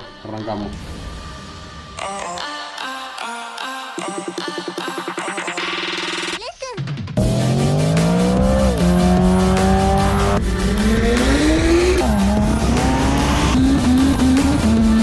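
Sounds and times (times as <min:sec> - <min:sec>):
motorcycle accelerating hard: 0:07.2 - 0:15.0.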